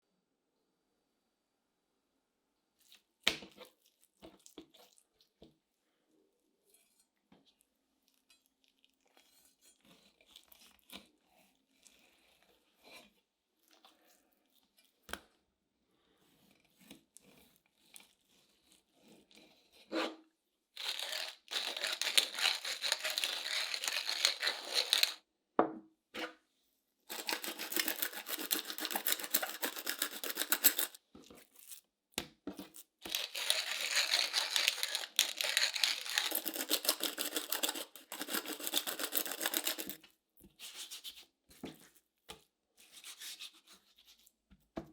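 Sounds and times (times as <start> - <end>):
rough tearing noise: 20.8 - 25.2, 27.1 - 31.0, 33.0 - 40.0.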